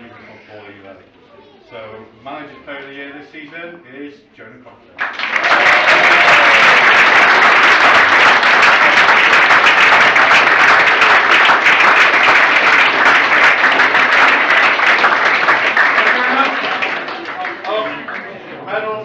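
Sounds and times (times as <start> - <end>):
audience applauding: 5.0 - 18.5.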